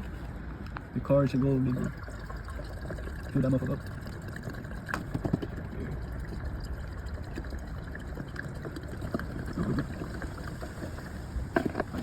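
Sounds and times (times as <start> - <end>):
petrol pouring into fuel filler: 1.7 - 12.0.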